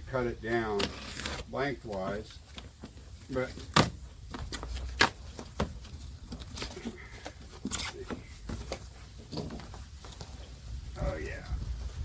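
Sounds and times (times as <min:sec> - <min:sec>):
package rustling and scraping: 0:00.6 - 0:01.6.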